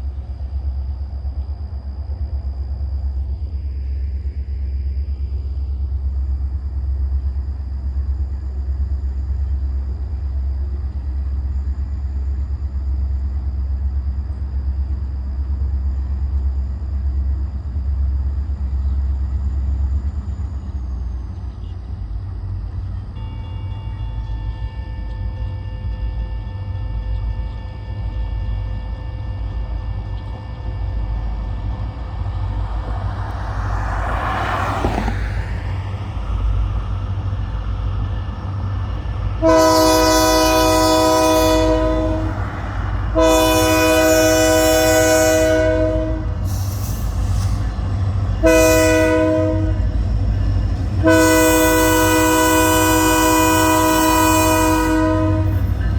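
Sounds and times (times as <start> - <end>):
crossing warning bells ringing: 20.5 - 55.9.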